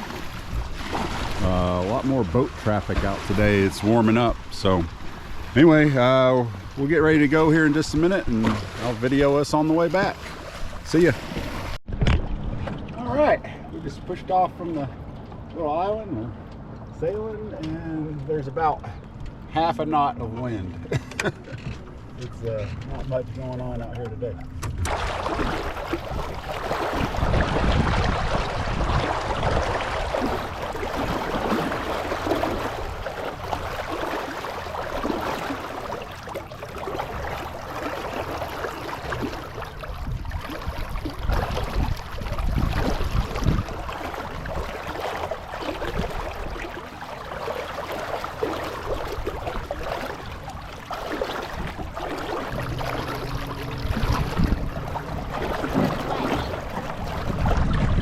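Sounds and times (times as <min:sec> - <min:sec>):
water splashing along a hull: 0:00.0 - 0:58.0
wind rumble on microphone: 0:23.8 - 0:33.9, 0:39.1 - 0:46.7, 0:48.9 - 0:58.0.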